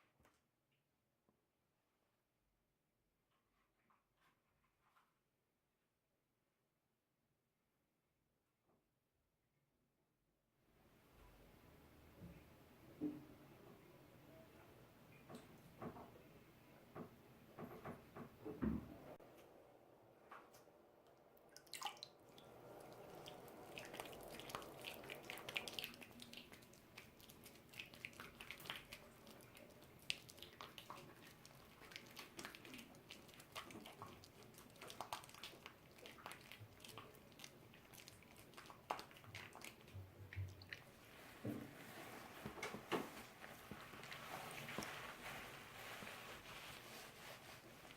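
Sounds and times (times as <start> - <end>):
wet squishing and dripping: 20.5 - 47.9.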